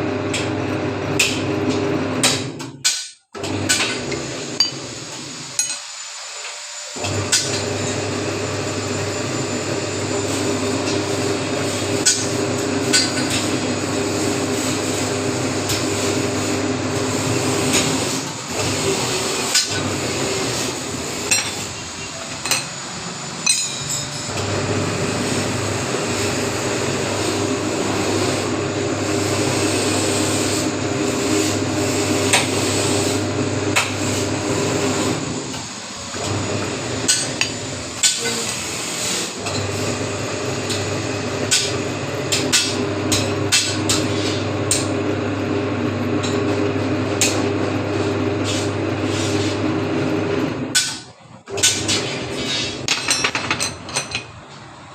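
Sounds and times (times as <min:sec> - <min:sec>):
bending machine humming: 0:03.4 - 0:29.8, 0:30.4 - 0:52.9
sharp metallic knocks and clinks: 0:23.4 - 0:24.3.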